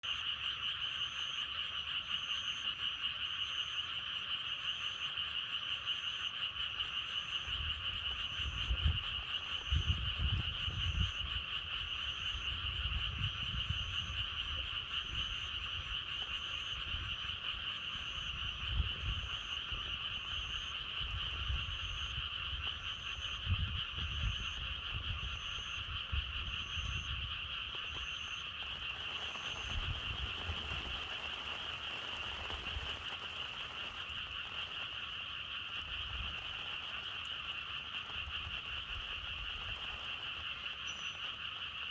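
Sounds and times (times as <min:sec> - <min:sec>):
frogs croaking: 0:00.0 - 0:41.9
wind gusts rumbling: 0:07.5 - 0:40.7.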